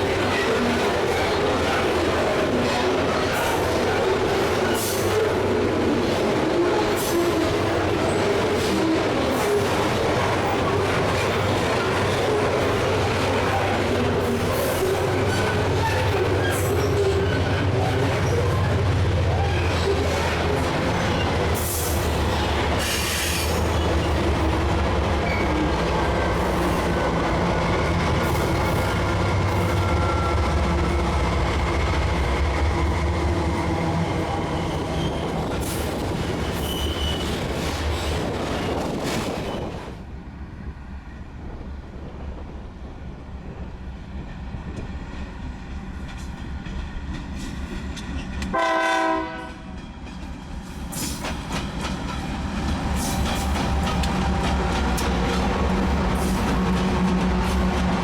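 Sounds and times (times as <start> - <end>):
faint wheel squeal: 36.6 - 37.4
train horn blast: 48.5 - 49.7
wheels clacking over rail joints: 49.7 - 58.0.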